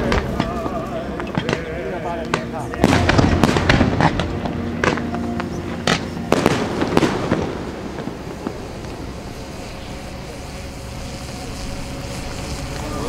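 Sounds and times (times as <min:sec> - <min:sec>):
aerial fireworks bursting: 0:00.0 - 0:13.0.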